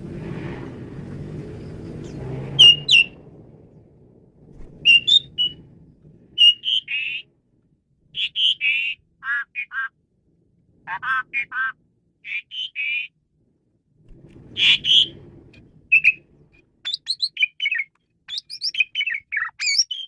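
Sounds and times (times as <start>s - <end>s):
starling calling: 1.6s - 3.2s, 4.8s - 5.7s, 6.4s - 7.3s, 8.2s - 9.9s, 10.9s - 13.1s, 14.5s - 15.2s, 15.9s - 16.2s, 16.8s - 20.0s
low rumble: 13.2s - 16.8s.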